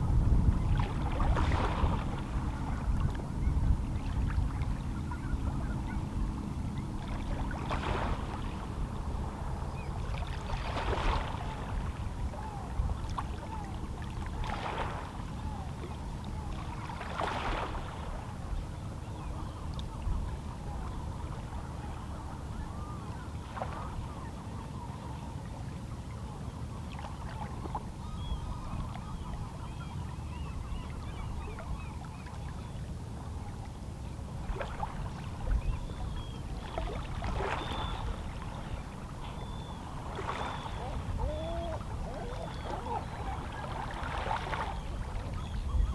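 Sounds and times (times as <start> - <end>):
wave splashes: 0.0 - 6.0, 7.0 - 18.6, 34.4 - 45.9
faint seabird calls: 0.0 - 45.9
low sea rumble: 0.0 - 45.9.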